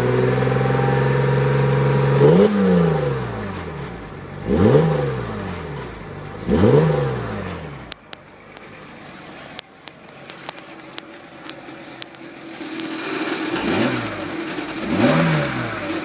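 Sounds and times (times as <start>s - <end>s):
car engine revving: 0.0s - 16.0s
sharp clicks: 7.9s - 8.8s.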